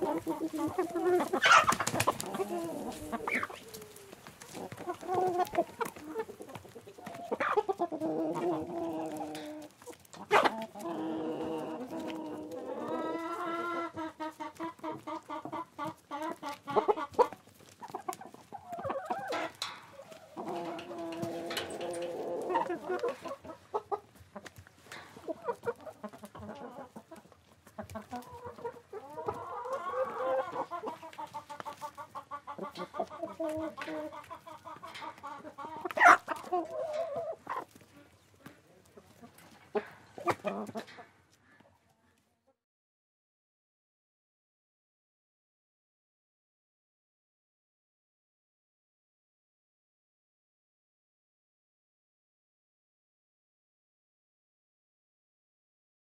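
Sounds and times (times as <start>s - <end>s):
chickens clucking: 0.0s - 42.5s.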